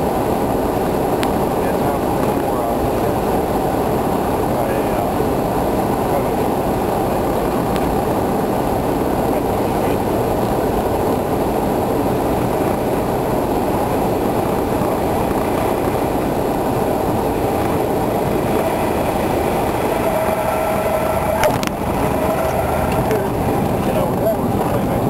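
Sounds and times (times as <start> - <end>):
airplane engine drone in cabin: 0.0 - 25.0
brief steady tone: 19.8 - 23.3.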